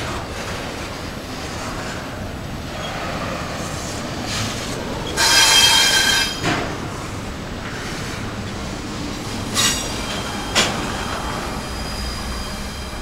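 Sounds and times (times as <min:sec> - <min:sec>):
freight cars rumbling and rattling: 0:00.0 - 0:13.0
metallic wheel squeal: 0:05.0 - 0:06.4.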